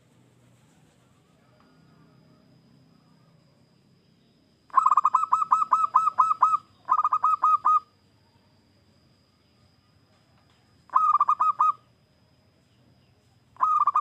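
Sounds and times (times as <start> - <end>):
dove cooing: 4.7 - 7.9, 10.9 - 11.9, 13.6 - 14.0.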